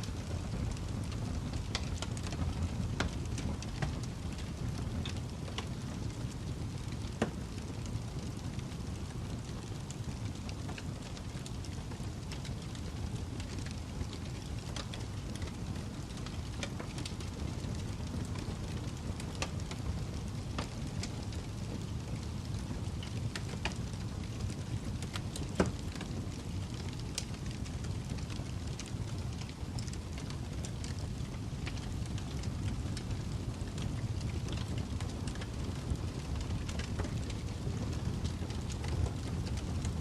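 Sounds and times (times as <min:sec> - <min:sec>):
fireplace fire crackling: 0:00.0 - 0:40.0.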